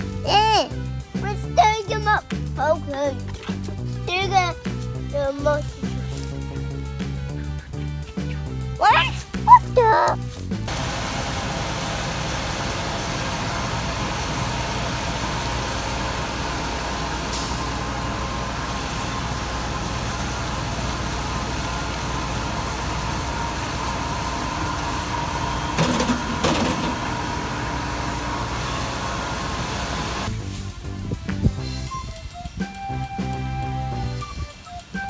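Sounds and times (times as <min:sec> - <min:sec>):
large vehicle engine running: 0:10.3 - 0:31.0.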